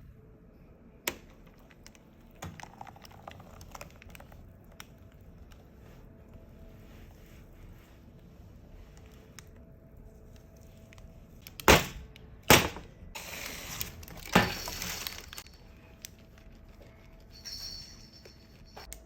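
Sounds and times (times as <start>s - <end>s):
rustling: 13.2s - 18.9s
kitchen items knocking: 14.2s - 15.4s.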